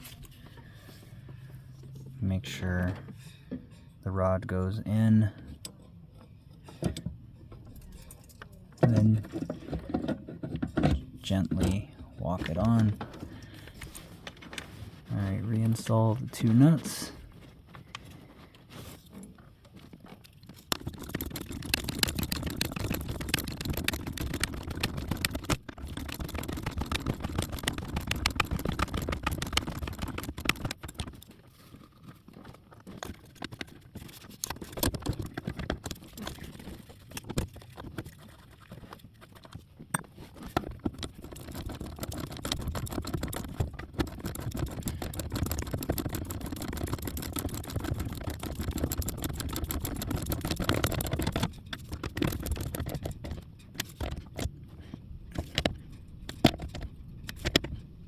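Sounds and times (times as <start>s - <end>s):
metal tool clicks and clatter: 6.6s - 9.4s, 20.0s - 37.8s, 39.5s - 54.6s, 55.3s - 58.0s.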